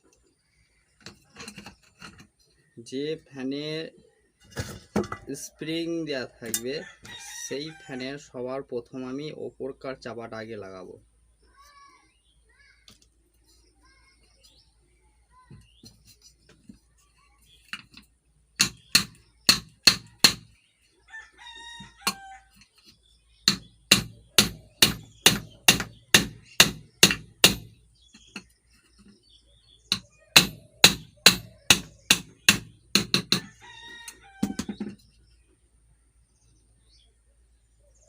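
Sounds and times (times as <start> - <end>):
hammer striking metal: 18.6 - 20.4, 23.5 - 27.8, 29.9 - 33.4
rooster crowing: 21.1 - 22.6, 33.3 - 34.8.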